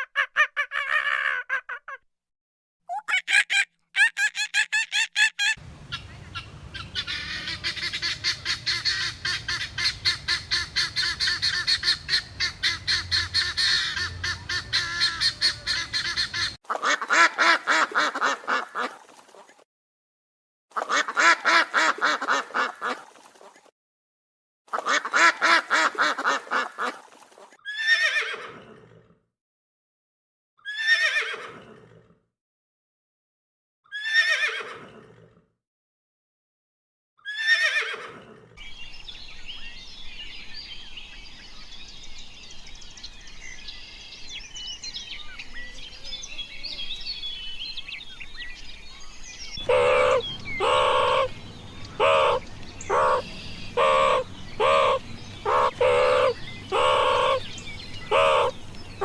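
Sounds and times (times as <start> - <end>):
fowl honking and cackling: 2.9 - 18.7, 49.6 - 59.0
calls sliding down in pitch: 49.6 - 58.6.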